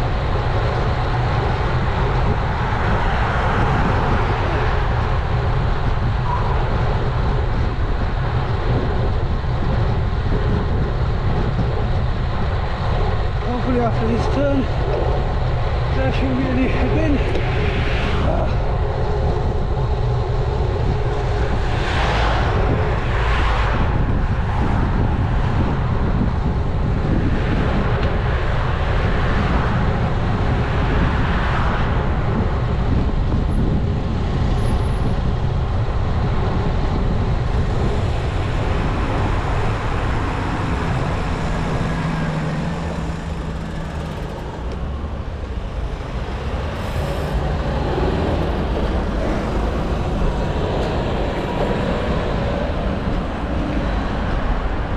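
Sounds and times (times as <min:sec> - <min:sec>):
road traffic: 0:00.0 - 0:54.9
wind buffeting microphone: 0:00.0 - 0:54.9.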